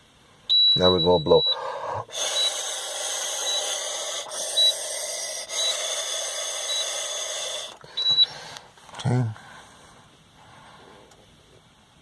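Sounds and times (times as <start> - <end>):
short high beeps: 0.5 - 2.7, 3.4 - 3.8, 4.5 - 4.8, 8.0 - 8.3
breath blowing into handset: 1.5 - 8.7.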